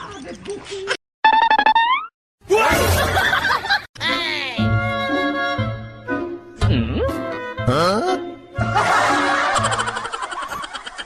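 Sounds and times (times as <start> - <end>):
laughter-like vocal sounds: 2.8 - 3.9, 7.8 - 11.0.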